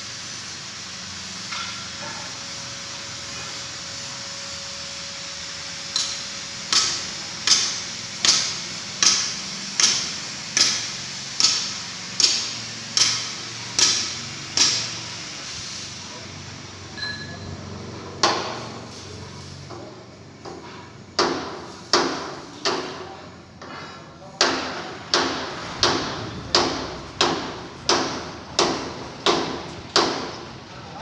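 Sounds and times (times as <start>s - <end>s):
hammer striking steel drum: 1.4s - 2.3s.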